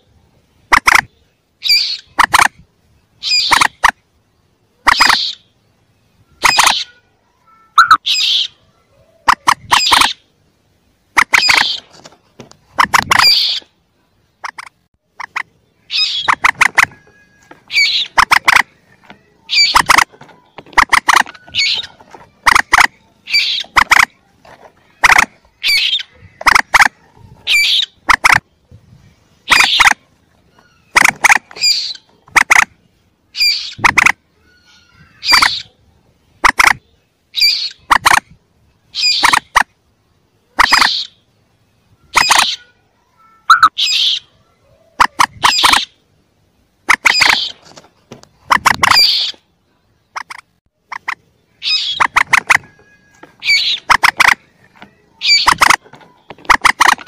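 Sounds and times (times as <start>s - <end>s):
moorhen chick calls: 0.6s - 2.6s, 3.2s - 4.0s, 4.8s - 5.6s, 6.2s - 7.0s, 7.7s - 10.3s, 11.1s - 28.7s, 29.3s - 38.3s, 38.9s - 39.7s, 40.4s - 41.4s, 42.0s - 42.8s, 43.5s - 46.0s, 46.8s - 47.6s, 48.2s - 57.0s.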